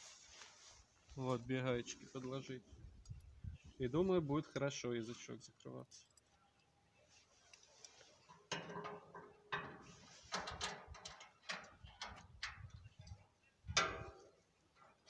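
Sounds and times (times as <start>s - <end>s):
metal clicks on gate latch: 8.4s - 14.4s.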